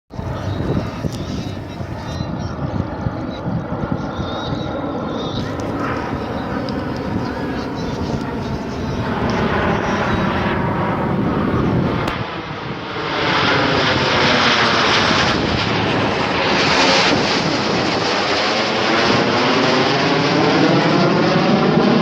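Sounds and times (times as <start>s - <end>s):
airplane engine flying past: 0.1s - 22.0s.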